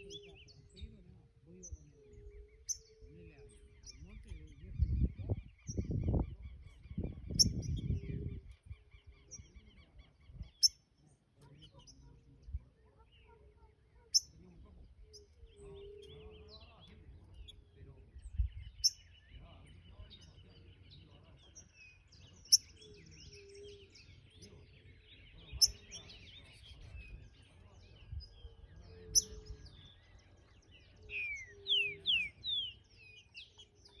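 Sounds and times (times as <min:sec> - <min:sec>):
faint background twittering: 0:00.0 - 0:34.0
songbird calling high notes: 0:28.6 - 0:30.1, 0:30.8 - 0:34.0.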